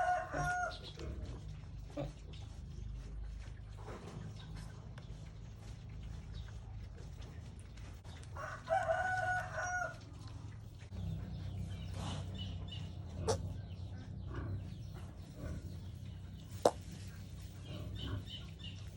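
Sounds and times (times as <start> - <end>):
rooster crowing: 0.0 - 0.8, 8.4 - 10.0.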